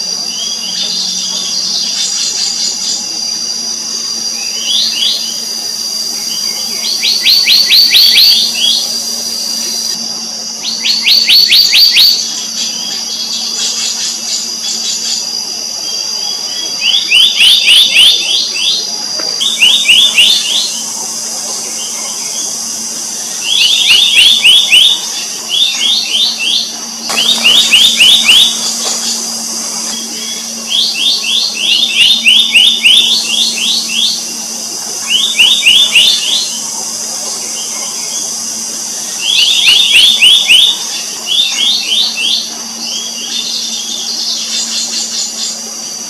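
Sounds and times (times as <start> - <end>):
steady high whine: 0.0 - 46.0
bird calling sharp ringing notes: 23.2 - 36.7.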